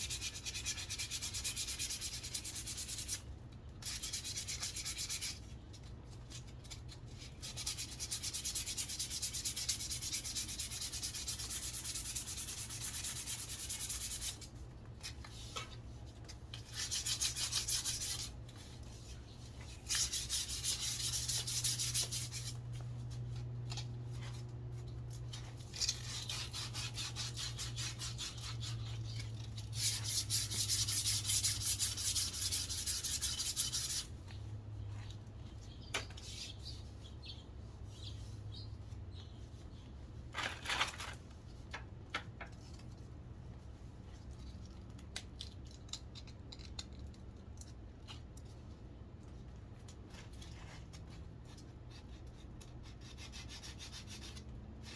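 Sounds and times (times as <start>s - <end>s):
sandpaper rasping on wood: 0.0s - 3.2s, 3.8s - 5.4s, 7.4s - 14.4s, 16.6s - 18.3s, 19.8s - 22.6s, 25.8s - 34.1s.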